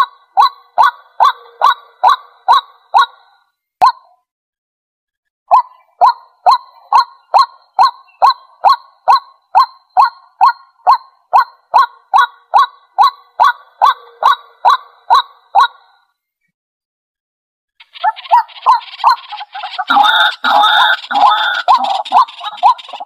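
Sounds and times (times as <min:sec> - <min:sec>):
waterhen calling: 0:17.8 - 0:23.0.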